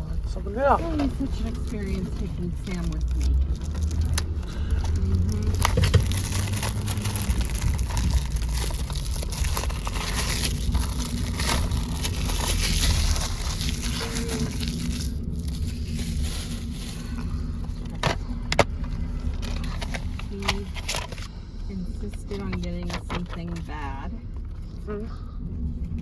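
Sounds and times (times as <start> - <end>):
steady low rumble: 0.0 - 26.0
plastic wrapping tearing and crinkling: 2.6 - 18.1.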